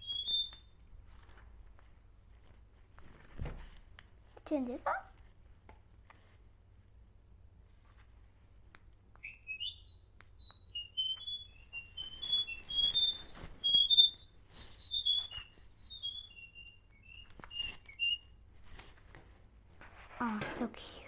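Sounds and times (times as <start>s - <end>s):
toy bird chirping: 0.0s - 0.8s, 9.2s - 18.3s.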